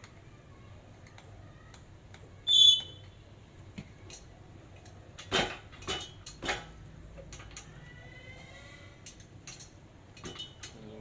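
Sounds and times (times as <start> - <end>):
metal parts and tools clinking: 4.1 - 7.8, 9.0 - 10.8.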